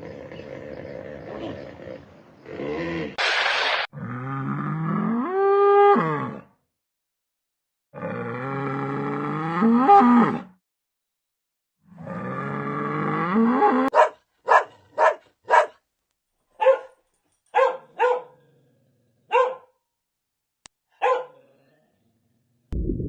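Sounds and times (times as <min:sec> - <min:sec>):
dog barking: 0:13.9 - 0:15.8, 0:16.6 - 0:18.4, 0:19.3 - 0:19.8, 0:20.9 - 0:21.4.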